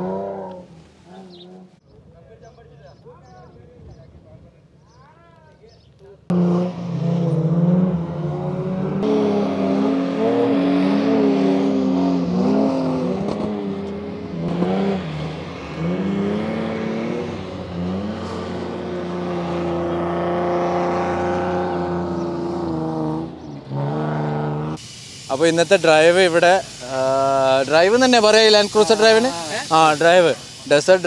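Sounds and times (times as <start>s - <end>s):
engines revving hard: 0.0s - 1.8s, 6.3s - 31.0s.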